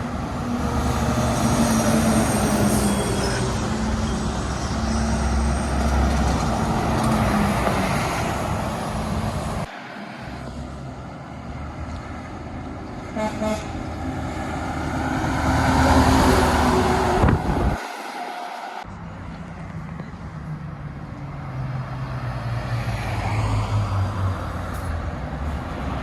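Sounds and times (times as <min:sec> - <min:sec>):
heavy trucks driving past: 0:00.0 - 0:26.0
truck horn toot: 0:13.1 - 0:13.9, 0:16.3 - 0:18.8.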